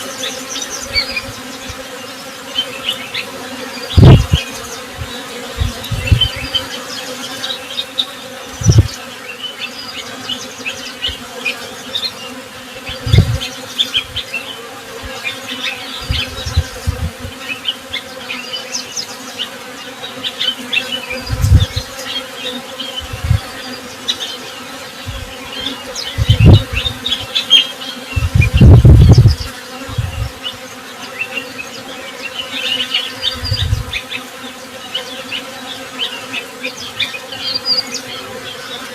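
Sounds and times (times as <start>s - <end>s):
bees buzzing: 0.0s - 38.9s
small birds chirping: 0.0s - 38.9s
low thuds: 5.0s - 6.5s, 16.0s - 17.3s, 26.2s - 27.0s.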